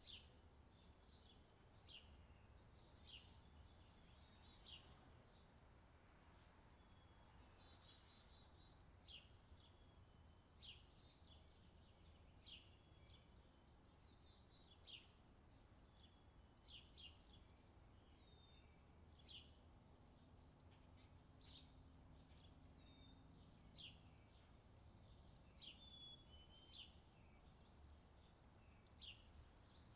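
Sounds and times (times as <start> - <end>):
small bird chirping: 20.7 - 29.9.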